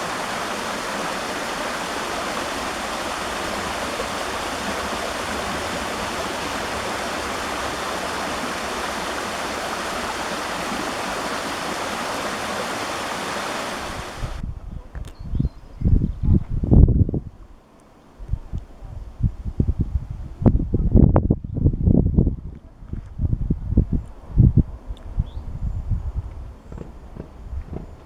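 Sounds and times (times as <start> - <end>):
waterfall rushing water: 0.0 - 14.4.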